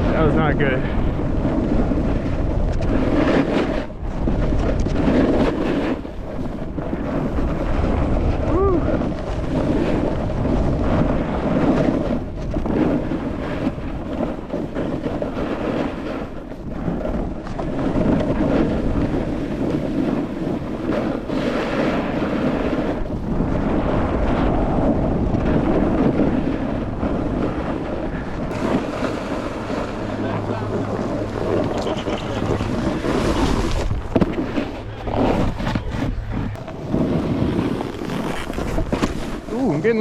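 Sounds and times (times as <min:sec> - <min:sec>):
snowboard sliding on snow: 0:00.0 - 0:40.0
wind rushing over microphone: 0:00.0 - 0:40.0
low rumble: 0:23.4 - 0:40.0.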